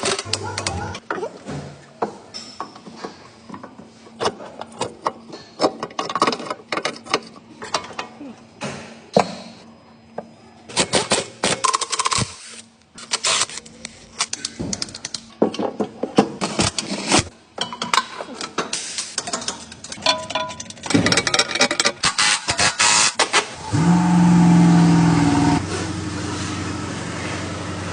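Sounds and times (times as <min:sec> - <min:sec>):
metal tools and bolts clanking: 0:17.6 - 0:22.1.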